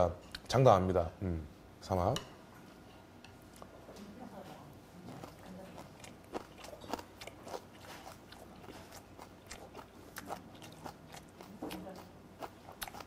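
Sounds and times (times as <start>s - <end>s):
close chewing: 4.8s - 13.0s.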